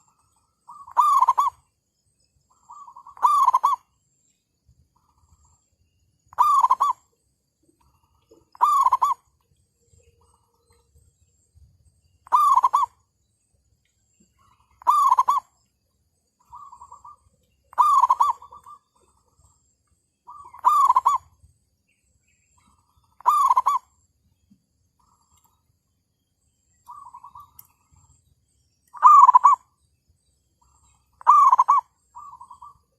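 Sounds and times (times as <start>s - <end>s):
doves cooing: 0.0s - 1.6s, 2.5s - 3.9s, 6.3s - 7.1s, 7.9s - 9.3s, 12.2s - 13.0s, 14.4s - 15.6s, 16.4s - 19.5s, 20.3s - 21.4s, 22.7s - 24.0s, 28.9s - 29.7s, 30.6s - 32.9s.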